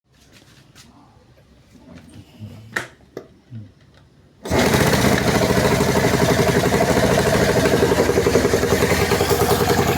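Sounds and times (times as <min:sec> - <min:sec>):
small engine idling with ticks: 0:04.5 - 0:09.9.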